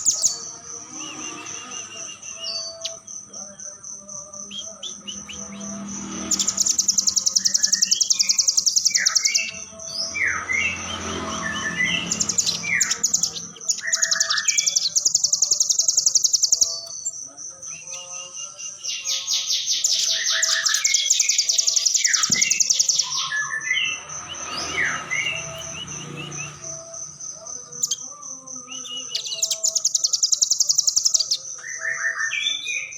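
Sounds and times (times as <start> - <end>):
bird chirps: 0.0 - 32.9
bird rapid high trills: 4.7 - 17.2, 18.8 - 27.2, 28.8 - 32.9.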